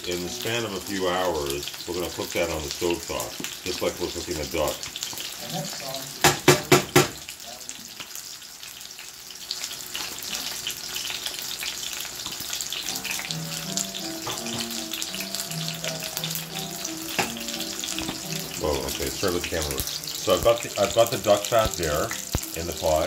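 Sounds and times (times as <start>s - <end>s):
onions sizzling in a pan: 0.0s - 23.0s
background music with melody: 12.7s - 23.0s.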